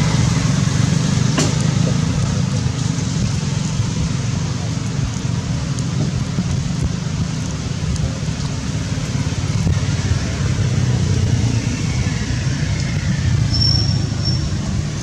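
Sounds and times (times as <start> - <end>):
short high squeak: 13.5 - 14.6.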